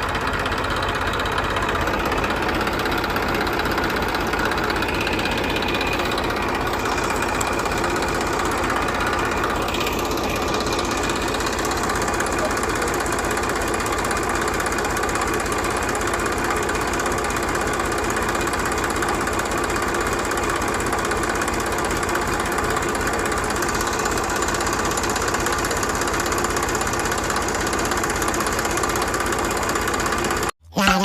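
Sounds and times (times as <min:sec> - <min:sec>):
small motor running: 0:00.0 - 0:30.5.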